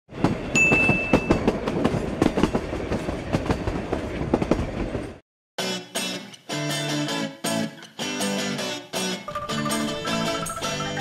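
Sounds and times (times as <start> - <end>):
train wheels clattering: 0.2 - 5.2
high steady tone: 9.3 - 11.0.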